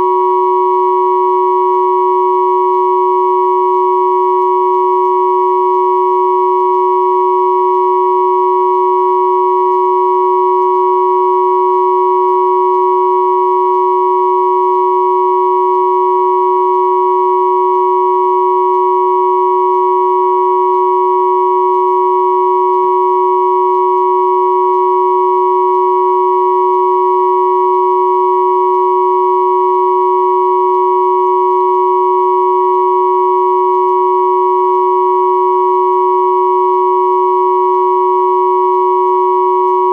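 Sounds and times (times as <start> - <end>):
steady sine tone chord: 0.0 - 39.9.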